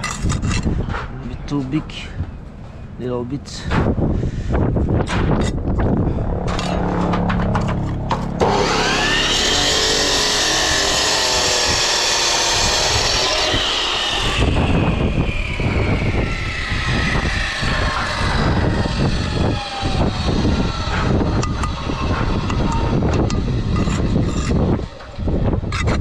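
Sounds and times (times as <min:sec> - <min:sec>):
angle grinder cutting brick: 0:08.4 - 0:26.0.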